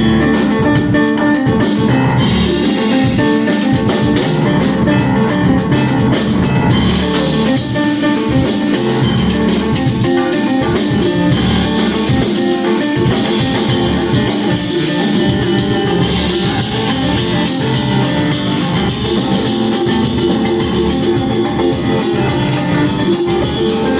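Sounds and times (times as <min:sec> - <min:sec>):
bass: 0:00.0 - 0:23.9
drum kit with cymbals: 0:00.0 - 0:23.9.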